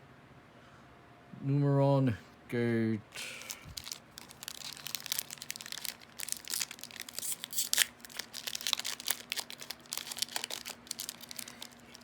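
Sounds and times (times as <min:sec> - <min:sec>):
foil wrapper crackling: 0:03.2 - 0:12.0
trading cards shuffling: 0:03.3 - 0:12.0.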